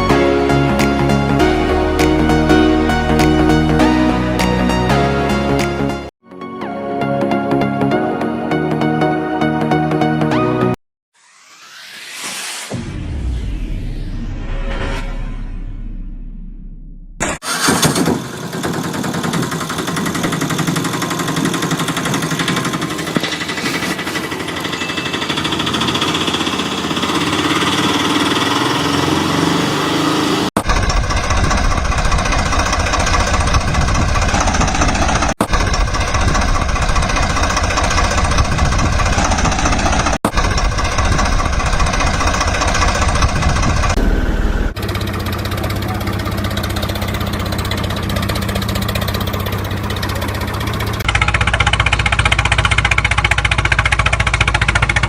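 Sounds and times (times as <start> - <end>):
engine clattering rumble: 17.2 - 55.0.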